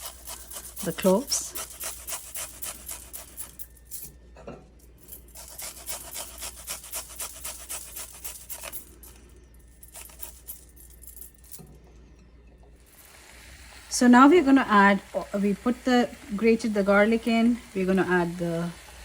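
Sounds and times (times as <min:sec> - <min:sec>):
garlic rasping on hand grater: 0:00.0 - 0:03.6, 0:05.4 - 0:08.7.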